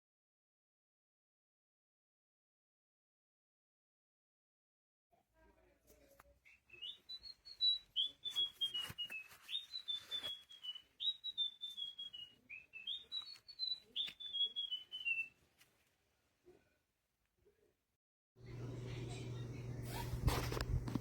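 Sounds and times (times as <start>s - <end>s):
electronic bird chirps from toy: 6.8s - 15.2s.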